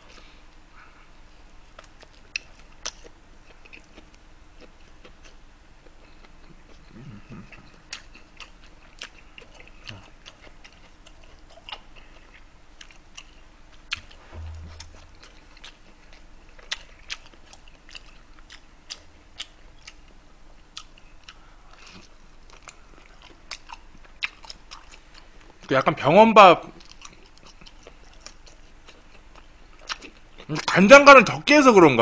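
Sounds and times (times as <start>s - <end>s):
short low thump: 14.0s - 15.5s.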